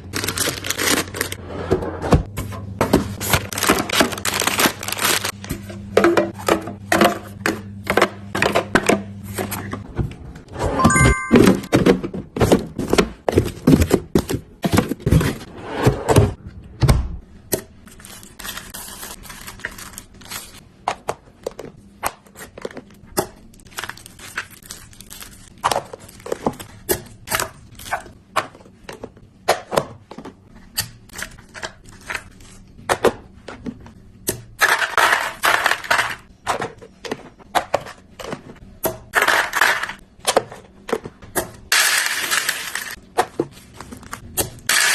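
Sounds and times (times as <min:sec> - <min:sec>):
packaging rustling: 0:00.0 - 0:01.4, 0:03.2 - 0:05.5.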